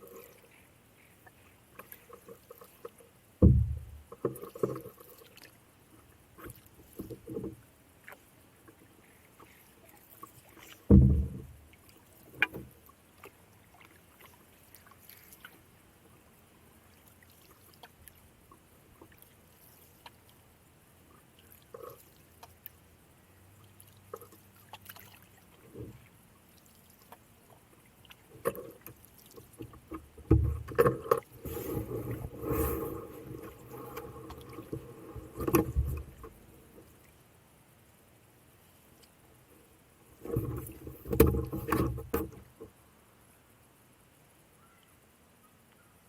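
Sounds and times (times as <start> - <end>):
paddle splashing water: 0.0 - 37.8, 38.4 - 42.8
paddle knocking on canoe: 3.4 - 4.8, 10.8 - 11.6, 29.6 - 31.2.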